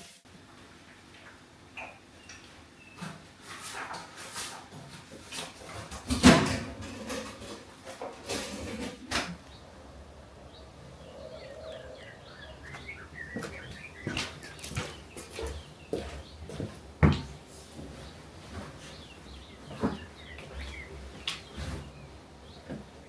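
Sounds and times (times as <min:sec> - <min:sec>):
faint bird chirps: 0:09.4 - 0:15.7.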